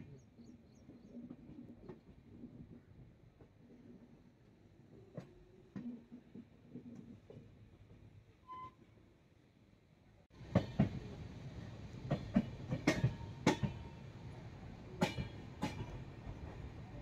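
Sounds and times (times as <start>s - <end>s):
train rumbling on rails: 0.0s - 9.6s, 10.3s - 17.0s
wheels clacking over rail joints: 12.0s - 14.0s.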